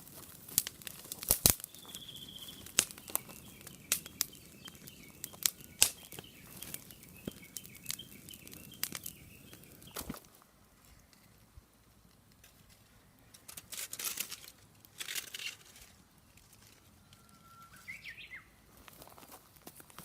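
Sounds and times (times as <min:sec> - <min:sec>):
rustling: 0:00.0 - 0:18.0
bird whistled call: 0:01.6 - 0:10.0, 0:17.0 - 0:18.6.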